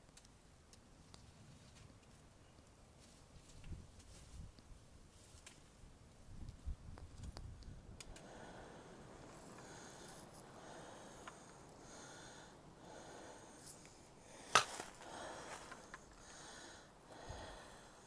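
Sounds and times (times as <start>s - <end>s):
heavy rhythmic breathing: 8.2s - 18.0s.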